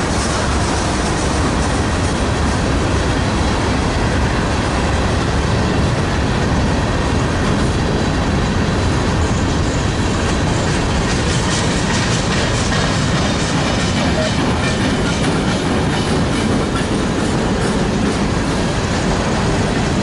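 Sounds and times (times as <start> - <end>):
freight train wheels rumbling on rail: 0.0 - 20.0.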